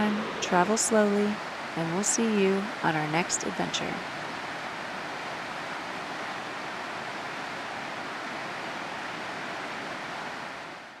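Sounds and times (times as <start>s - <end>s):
waterfall rushing: 0.0s - 2.5s.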